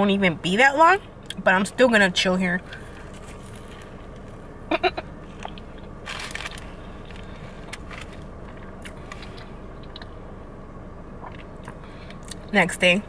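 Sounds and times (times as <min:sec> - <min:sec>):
steady low hum: 0:00.0 - 0:13.0
person chewing crunchy food: 0:02.7 - 0:10.2, 0:11.2 - 0:12.5.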